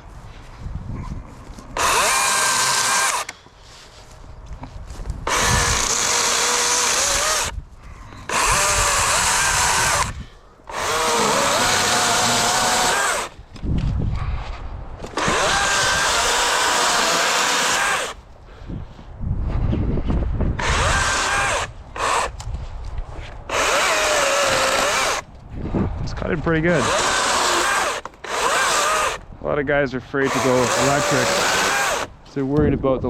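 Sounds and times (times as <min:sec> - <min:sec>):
chainsaw cutting logs: 0:01.8 - 0:03.5, 0:05.2 - 0:13.4, 0:15.0 - 0:18.2, 0:20.6 - 0:22.4, 0:23.5 - 0:25.3, 0:26.7 - 0:29.3, 0:30.2 - 0:32.2.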